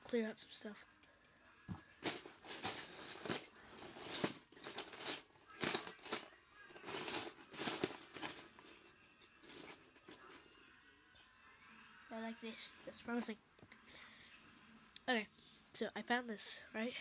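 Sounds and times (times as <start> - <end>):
plastic bricks clattering: 2.0 - 8.7.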